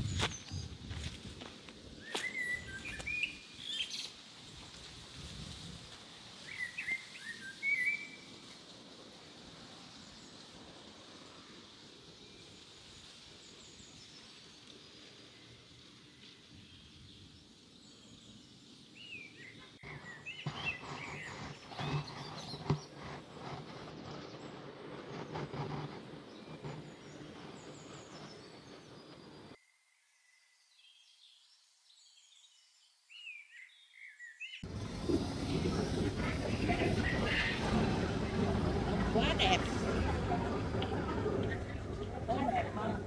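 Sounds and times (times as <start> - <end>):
birds chirping: 0.0 - 4.1, 34.6 - 43.0.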